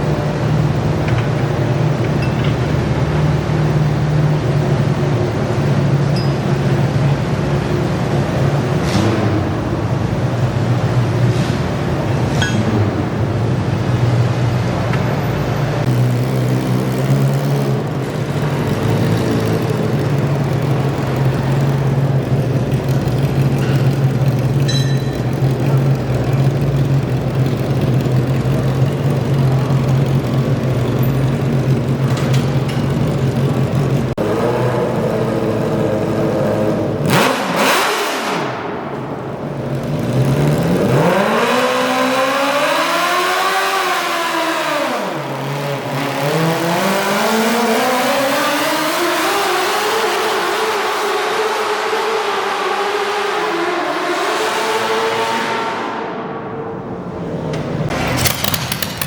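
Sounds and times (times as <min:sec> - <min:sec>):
garden tractor engine running: 0:57.9 - 0:59.0.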